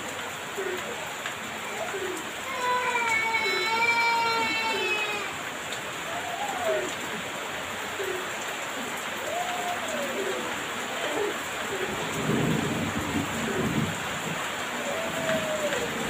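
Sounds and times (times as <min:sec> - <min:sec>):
heavy rain pouring: 0:00.0 - 0:16.0
thunder rumbling: 0:11.8 - 0:16.0.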